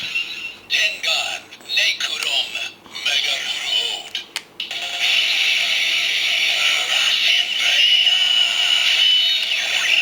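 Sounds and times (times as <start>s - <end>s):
synthesized voice from toy speaker: 6.4s - 10.0s.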